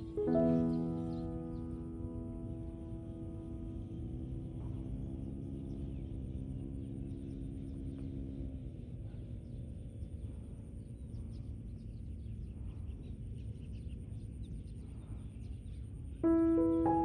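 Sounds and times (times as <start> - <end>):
piano music: 0.0 - 4.1, 16.2 - 17.0
low outdoor background noise: 0.0 - 17.0.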